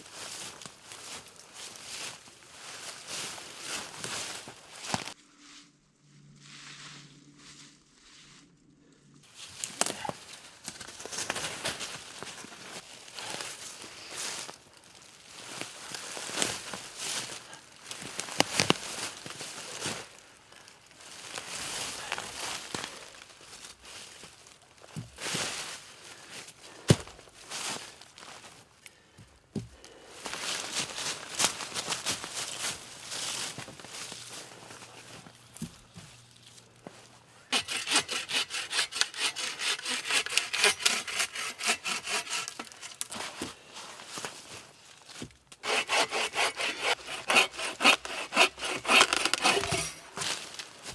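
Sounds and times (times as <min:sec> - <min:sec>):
rustling in forest litter: 0:00.0 - 0:08.6, 0:09.2 - 0:29.2, 0:29.8 - 0:37.6, 0:41.8 - 0:45.6, 0:49.8 - 0:50.9
hand saw cutting wood: 0:37.5 - 0:43.4, 0:45.6 - 0:50.9.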